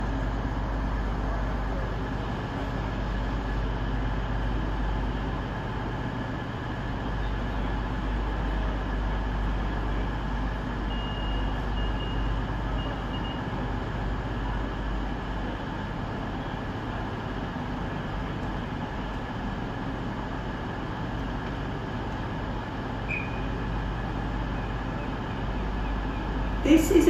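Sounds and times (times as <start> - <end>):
train diesel engines rumbling: 0.0 - 27.0
faint high whistle: 23.0 - 23.5.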